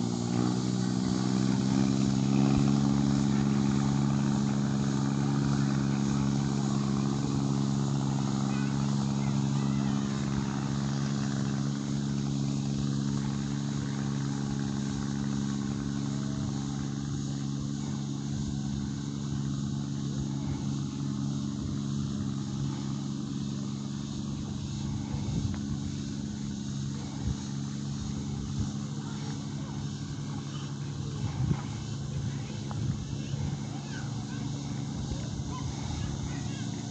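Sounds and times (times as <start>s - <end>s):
engine humming steadily: 0.0s - 36.9s.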